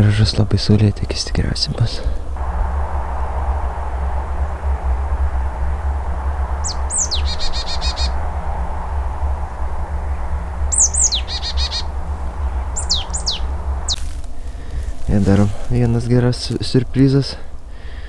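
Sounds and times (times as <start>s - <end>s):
steady low rumble: 0.0s - 18.0s
bird calling: 5.5s - 15.0s.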